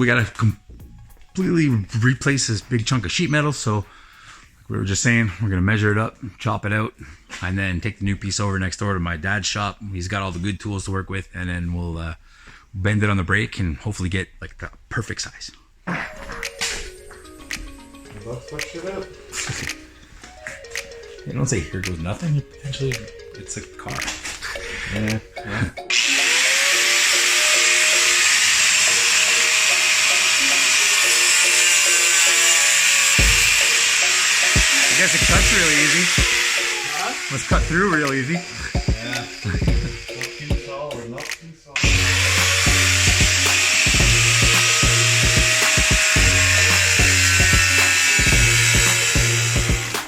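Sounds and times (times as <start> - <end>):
background music: 0.0 - 4.3, 15.9 - 50.0
steady bass beat: 0.2 - 3.0, 33.2 - 33.7, 34.6 - 36.4, 37.5 - 38.0, 38.7 - 40.7, 41.8 - 50.0
power tool cutting sheet metal: 25.9 - 40.5, 41.8 - 50.0.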